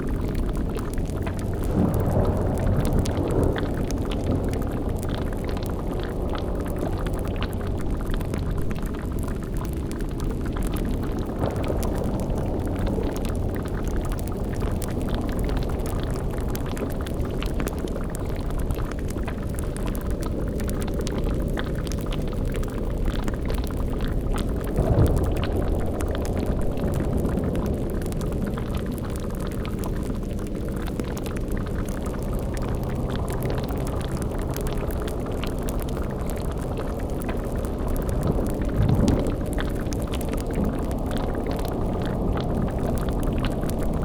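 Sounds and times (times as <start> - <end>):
boiling cauldron bubbling: 0.0 - 44.0
low rumbling drone: 0.0 - 44.0
short low rumble: 0.1 - 15.7, 24.4 - 29.8.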